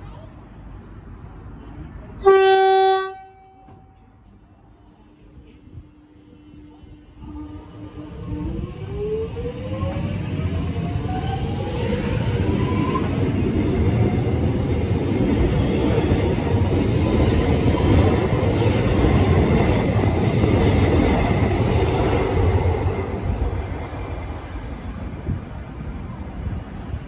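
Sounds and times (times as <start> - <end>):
train wheels rumbling on rail: 3.6 - 27.0.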